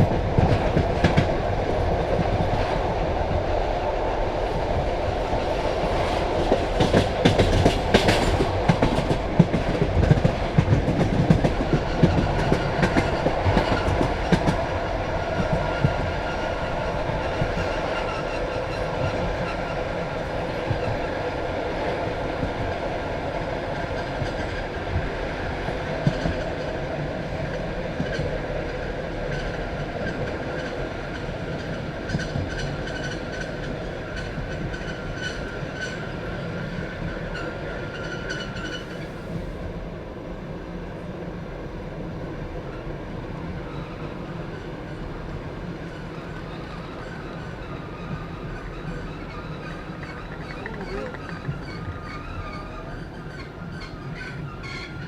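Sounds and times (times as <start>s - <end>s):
train rumbling: 0.0s - 55.0s
train wheels clattering: 5.2s - 19.8s, 46.0s - 55.0s.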